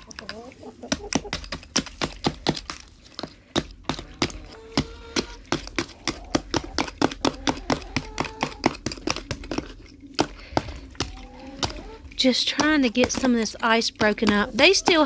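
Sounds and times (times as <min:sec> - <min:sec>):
screwdriver chipping ice: 0:05.5 - 0:15.0.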